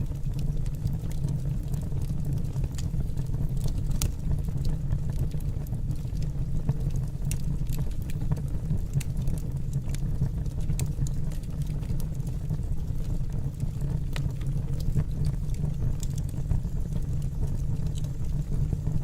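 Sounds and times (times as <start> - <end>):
fire burning in fireplace: 0.0 - 19.0
fire crackles and pops: 0.0 - 19.0.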